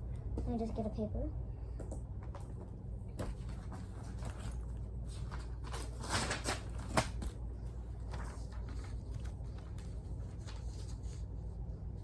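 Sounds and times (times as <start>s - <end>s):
paper rustling: 3.3s - 12.0s.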